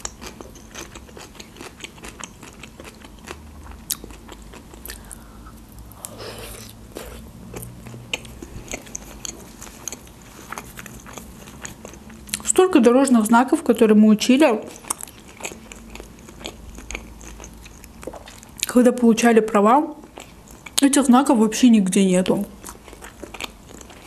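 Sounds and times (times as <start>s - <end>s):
person chewing food: 0.0s - 12.5s, 14.7s - 18.7s, 20.0s - 20.8s, 22.6s - 24.0s.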